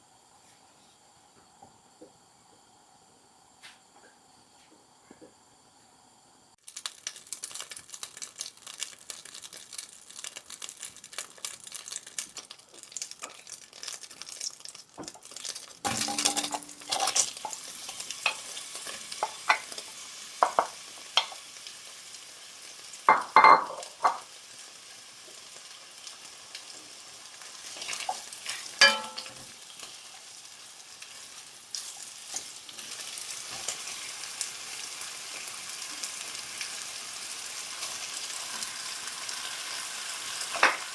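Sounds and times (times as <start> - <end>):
food sizzling in a pan: 5.5 - 40.9
utensil clattering: 15.9 - 17.6.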